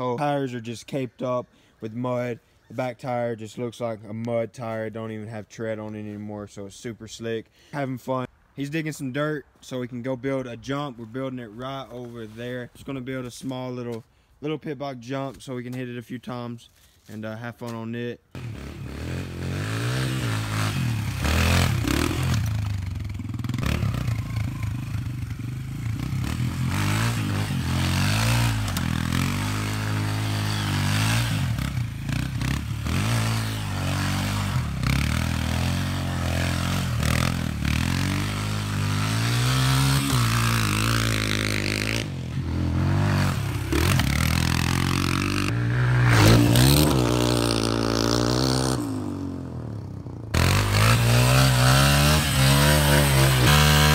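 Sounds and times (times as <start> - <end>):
pit bike engine revving: 18.4 - 53.9.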